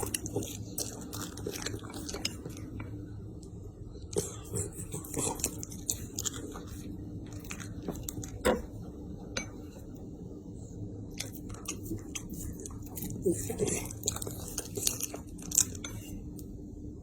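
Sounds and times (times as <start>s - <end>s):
dog crunching food: 0.0s - 2.8s, 4.1s - 8.4s, 11.1s - 16.0s.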